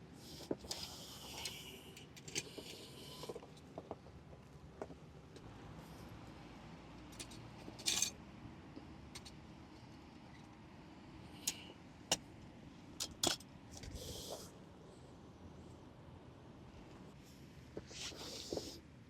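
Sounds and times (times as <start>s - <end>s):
faint steady background noise: 0.0s - 19.0s.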